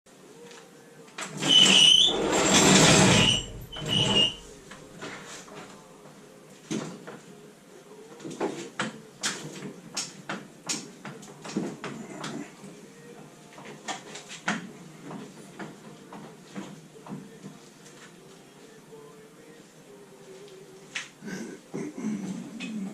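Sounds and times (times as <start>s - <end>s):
loud scraping with high squeak: 1.3s - 5.4s.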